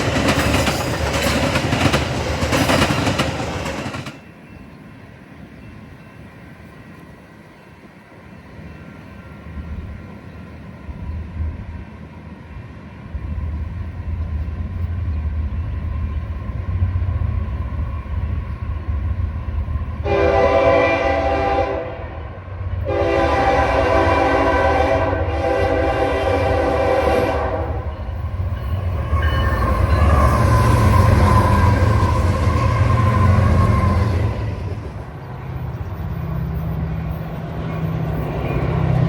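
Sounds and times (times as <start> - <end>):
locomotive rumble: 0.0 - 4.8, 13.2 - 39.0
train wheel noise: 0.0 - 39.0
train air horn blasts: 20.0 - 28.0.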